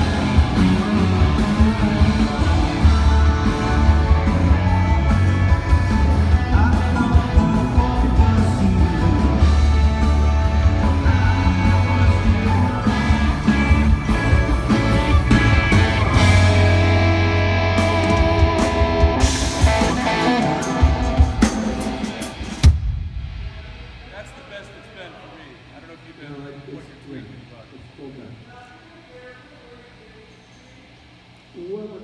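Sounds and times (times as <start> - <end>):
electric guitar: 0.0 - 22.8
heavy bass: 0.0 - 24.6
drums with cymbal hits: 0.0 - 25.7.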